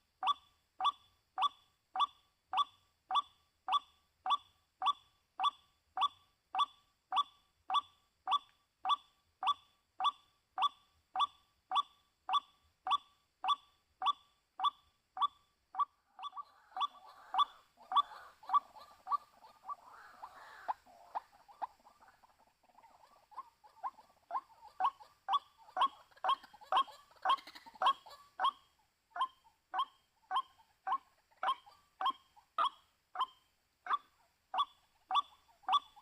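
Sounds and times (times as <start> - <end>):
waterhen calling: 14.6 - 36.0.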